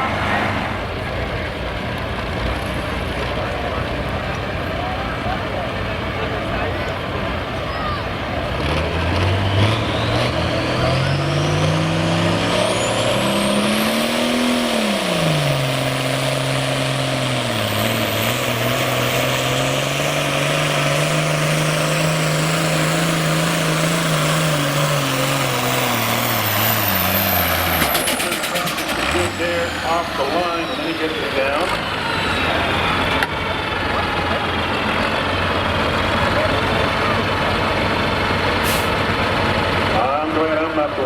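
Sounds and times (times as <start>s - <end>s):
tractor engine under load: 0.0s - 41.0s.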